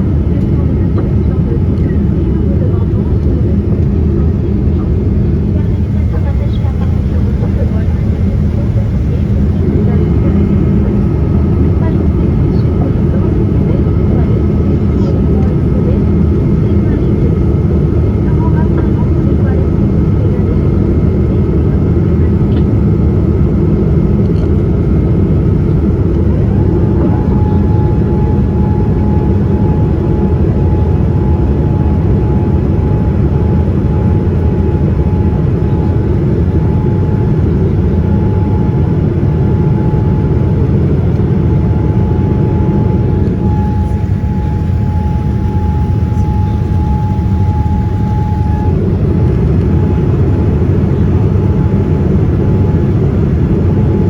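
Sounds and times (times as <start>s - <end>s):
jet engine and airflow rumble: 0.0s - 54.0s
thin steady whine: 1.4s - 20.4s, 21.6s - 53.3s.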